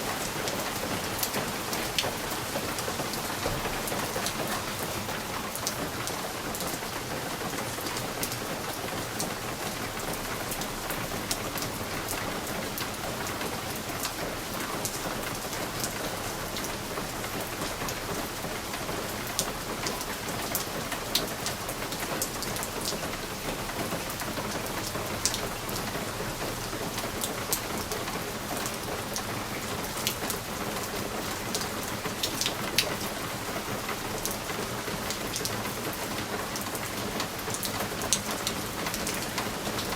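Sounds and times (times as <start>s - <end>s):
rain against a window: 0.0s - 39.9s
sharp taps of raindrops: 0.2s - 10.7s.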